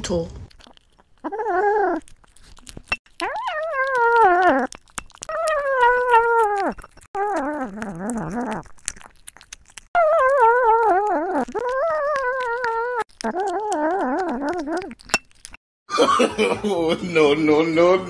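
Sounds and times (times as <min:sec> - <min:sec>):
dog howling and whining: 0:03.2 - 0:08.7, 0:10.0 - 0:15.0.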